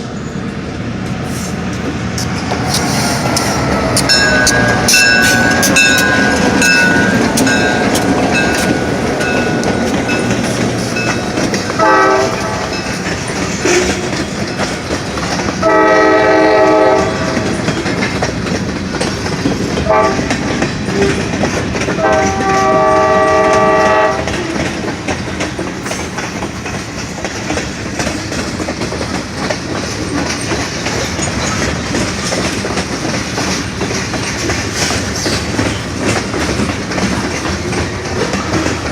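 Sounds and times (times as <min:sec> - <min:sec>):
diesel locomotive engines rumbling: 0:00.0 - 0:38.9
train wheels clattering on rails: 0:00.0 - 0:38.9
locomotive horn blasts: 0:11.8 - 0:12.8, 0:15.6 - 0:17.6, 0:19.8 - 0:20.3, 0:22.0 - 0:24.4.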